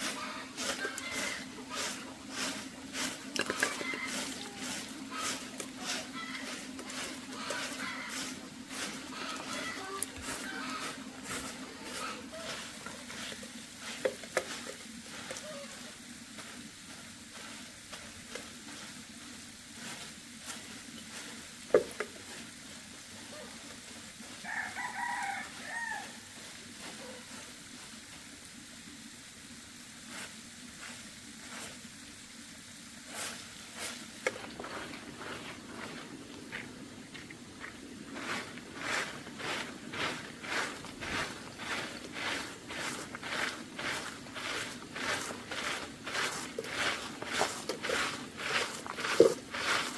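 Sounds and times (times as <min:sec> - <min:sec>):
steady low hiss: 0:00.0 - 0:49.9
rooster crowing: 0:00.2 - 0:01.5, 0:03.6 - 0:04.6, 0:24.4 - 0:26.3.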